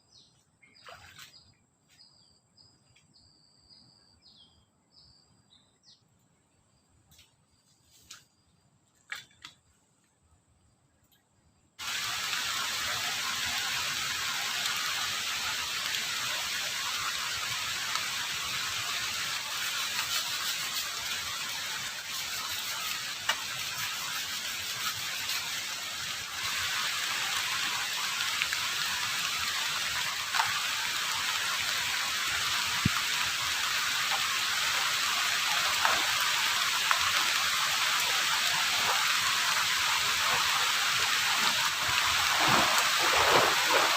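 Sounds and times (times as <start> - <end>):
heavy rain pouring: 11.8 - 43.9.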